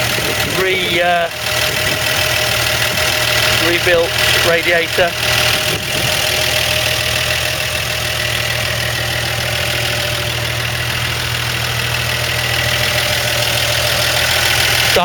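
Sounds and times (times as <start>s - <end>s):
truck engine idling quietly: 0.0s - 15.0s.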